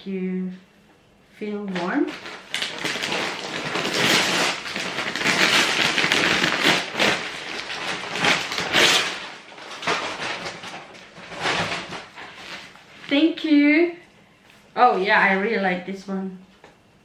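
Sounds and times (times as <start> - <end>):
gift packaging rustling: 1.7 - 13.2.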